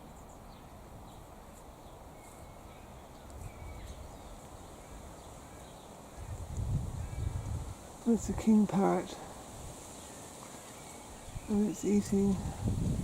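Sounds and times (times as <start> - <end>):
faint bird chirps: 0.0 - 7.6, 10.0 - 12.3
wind rumbling on microphone: 2.4 - 4.3, 6.1 - 9.8, 11.1 - 13.0.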